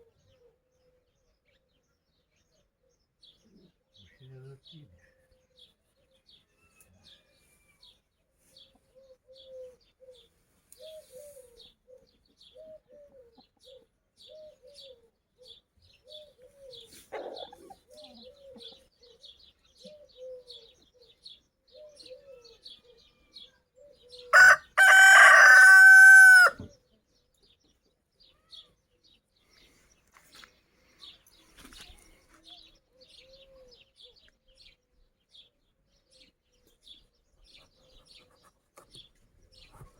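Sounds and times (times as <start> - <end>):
small birds chirping: 0.0 - 39.9
hen clucking softly: 16.6 - 18.9
rooster crowing: 24.3 - 26.6.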